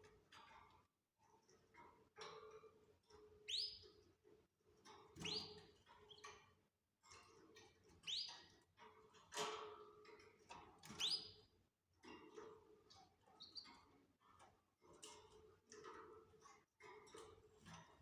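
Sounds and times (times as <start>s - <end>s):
canaries chirping: 3.5s - 3.8s
soft bird twittering: 3.5s - 3.8s, 8.1s - 8.3s.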